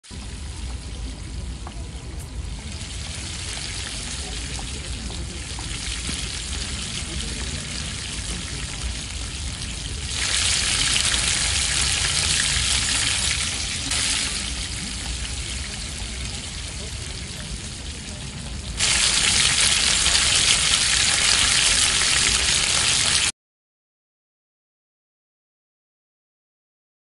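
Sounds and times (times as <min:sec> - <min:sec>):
food sizzling in a pan: 0:01.8 - 0:23.3.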